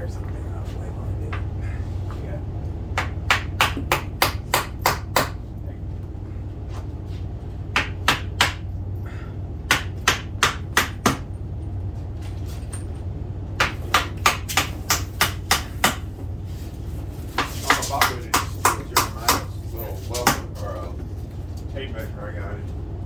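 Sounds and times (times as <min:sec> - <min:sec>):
steady low hum: 0:00.0 - 0:23.0
hammer striking wooden trim: 0:03.0 - 0:05.4, 0:07.7 - 0:08.7, 0:09.7 - 0:11.3, 0:13.6 - 0:16.2, 0:17.3 - 0:19.5, 0:20.2 - 0:20.6.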